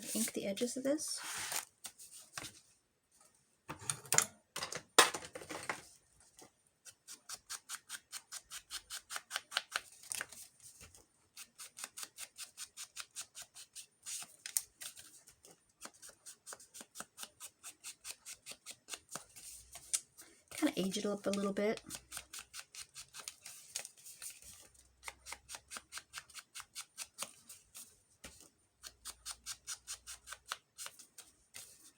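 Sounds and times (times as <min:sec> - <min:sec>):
handling rustles and knocks: 0:01.2 - 0:06.6.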